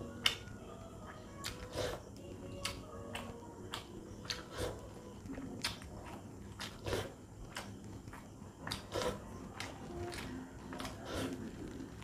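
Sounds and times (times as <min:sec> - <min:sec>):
wet chewing and lip smacks: 0:05.2 - 0:11.4
sharp wet clicks: 0:05.2 - 0:11.5.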